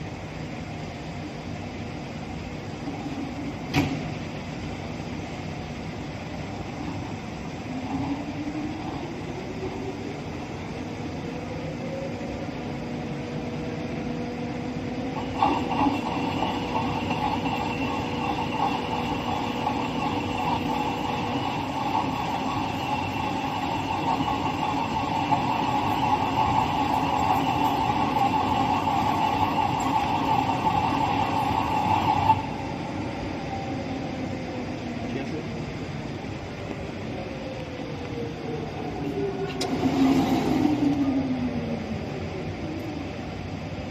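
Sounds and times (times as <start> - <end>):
motor whine: 6.6 - 34.8, 36.2 - 43.5
metal cutting noise: 15.2 - 32.6.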